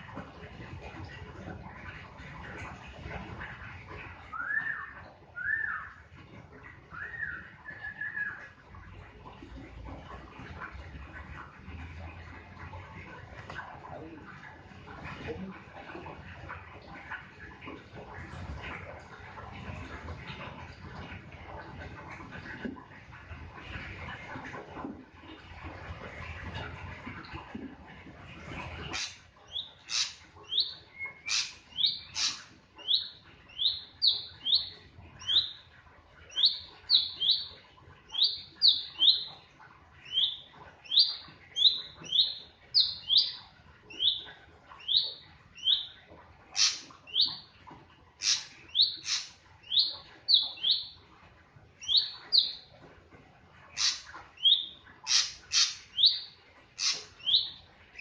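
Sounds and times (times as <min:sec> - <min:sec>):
bird chirping: 0:28.9 - 0:35.6, 0:36.3 - 0:39.4, 0:40.0 - 0:46.0, 0:46.6 - 0:47.5, 0:48.2 - 0:51.0, 0:51.8 - 0:52.7, 0:53.8 - 0:58.0
sharp high bird calls: 0:31.1 - 0:33.0, 0:48.2 - 0:50.8, 0:53.8 - 0:56.2.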